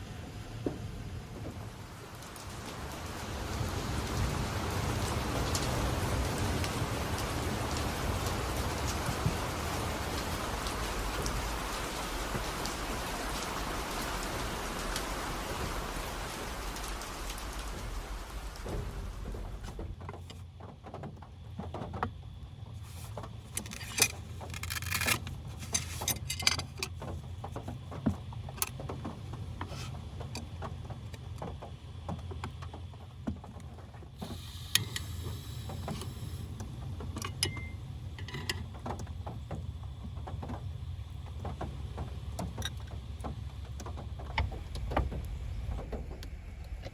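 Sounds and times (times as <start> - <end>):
steady rain: 0.0 - 46.9
low steady hum: 21.3 - 46.9
scattered clicks and knocks: 23.1 - 34.0, 35.7 - 46.9.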